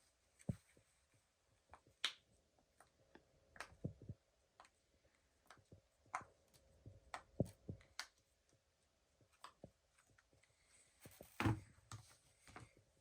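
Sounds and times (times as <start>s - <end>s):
thump: 11.4s - 11.6s.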